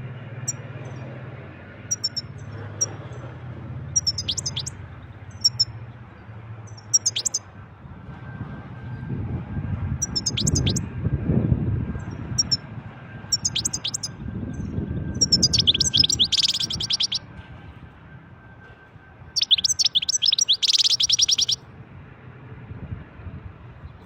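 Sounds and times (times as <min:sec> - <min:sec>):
goldfinch twittering song: 0:01.9 - 0:03.2, 0:04.0 - 0:05.8, 0:06.7 - 0:07.4, 0:10.0 - 0:10.8, 0:13.3 - 0:17.2, 0:19.4 - 0:21.6.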